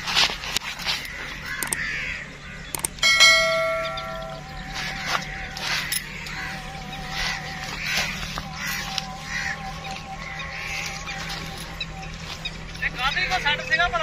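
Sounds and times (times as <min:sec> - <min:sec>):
birds calling: 0:00.0 - 0:14.0
steady low hum: 0:00.0 - 0:14.0
faint wavering tone: 0:03.0 - 0:14.0.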